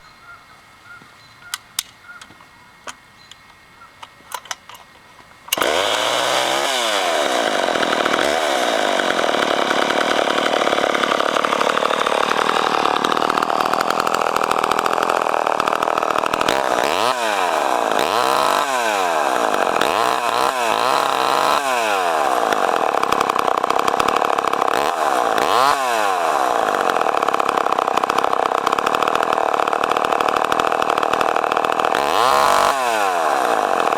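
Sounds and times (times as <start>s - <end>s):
faint clicks: 1.4s - 5.7s
chainsaw engine revving: 5.4s - 33.9s.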